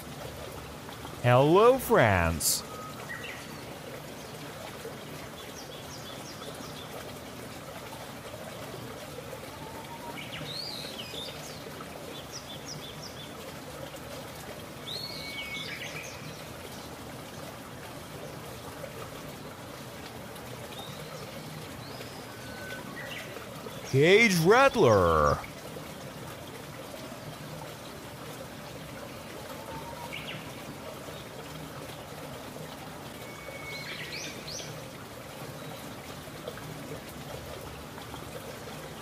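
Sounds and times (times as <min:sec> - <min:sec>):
outdoor hiss: 0:01.2 - 0:02.6.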